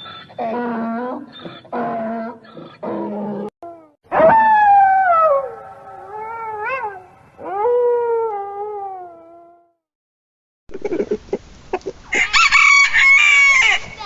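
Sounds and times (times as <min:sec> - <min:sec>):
dog howling: 0:00.4 - 0:09.7.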